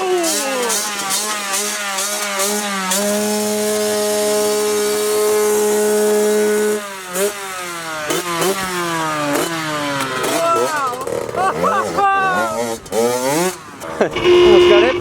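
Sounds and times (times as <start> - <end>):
dirt bike engine revving: 12.5 - 15.0.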